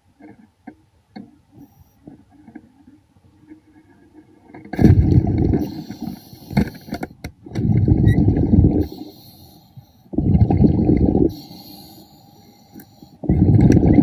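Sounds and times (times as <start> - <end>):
air bubbling underwater: 4.8 - 5.7, 7.6 - 8.9, 10.2 - 11.3, 13.3 - 14.0.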